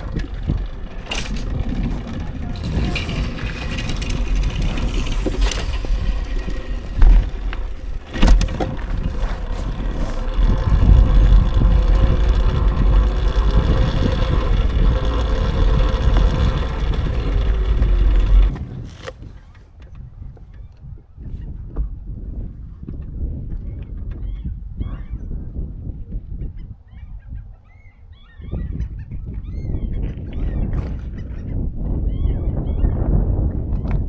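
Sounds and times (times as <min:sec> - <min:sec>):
electric motor whine: 0:00.0 - 0:19.3
wind buffeting microphone: 0:00.0 - 0:34.0.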